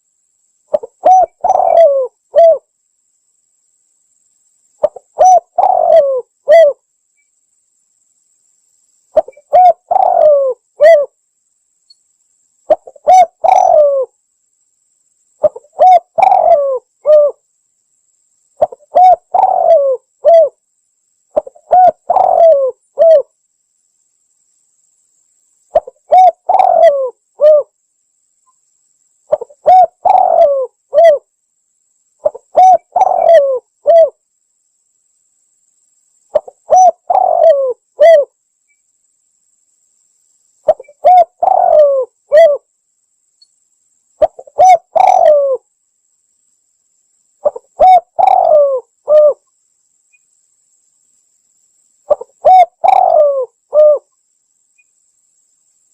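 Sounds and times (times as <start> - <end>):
dove cooing: 0.7 - 2.7, 4.8 - 6.8, 9.2 - 11.2, 12.7 - 14.1, 15.4 - 17.4, 18.6 - 20.6, 21.4 - 23.3, 25.7 - 27.7, 29.3 - 31.3, 32.2 - 34.2, 36.3 - 38.3, 40.7 - 42.6, 44.2 - 45.6, 47.4 - 49.4, 52.1 - 54.1.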